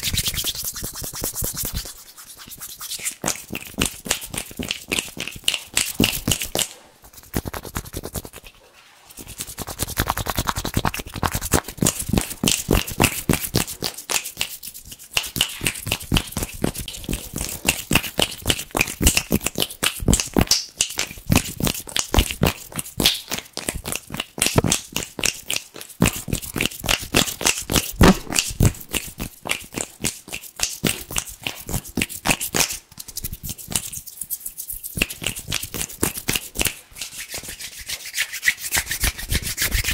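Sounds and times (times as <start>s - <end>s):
hands rubbing together: 0.0s - 18.7s, 27.7s - 39.9s.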